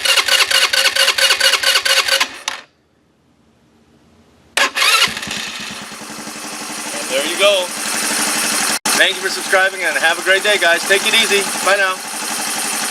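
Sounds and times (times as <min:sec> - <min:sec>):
engine starter cranking: 0:00.0 - 0:02.7, 0:04.6 - 0:06.0
engine idling: 0:04.6 - 0:12.9.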